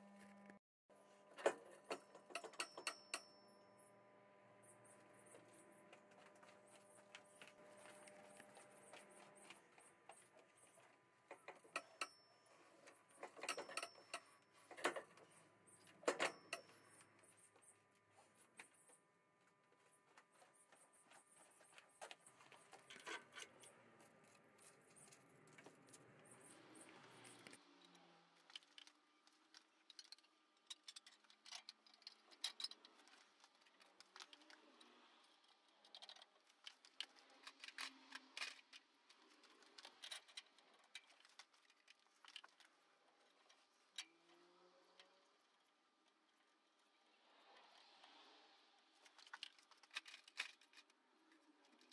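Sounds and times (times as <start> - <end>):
metallic clicks and clinks: 1.4 - 3.4, 11.3 - 17.3.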